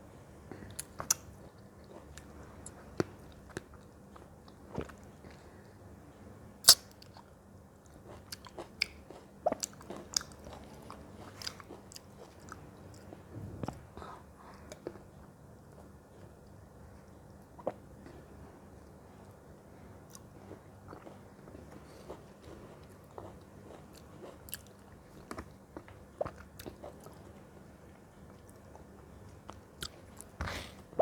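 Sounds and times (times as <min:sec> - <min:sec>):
person chewing crunchy fruit: 0:06.7 - 0:13.8, 0:20.1 - 0:27.2.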